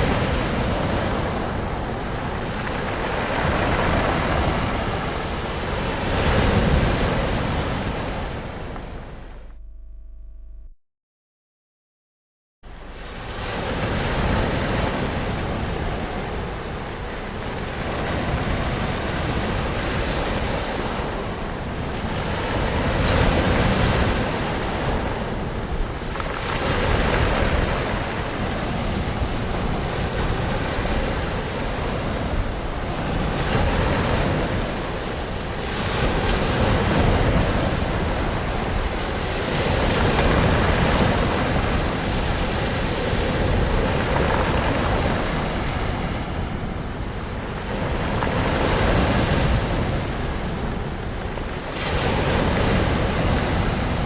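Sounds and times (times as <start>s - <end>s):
ocean waves breaking: 0.0s - 9.6s, 12.7s - 54.0s
wind on microphone: 12.7s - 54.0s.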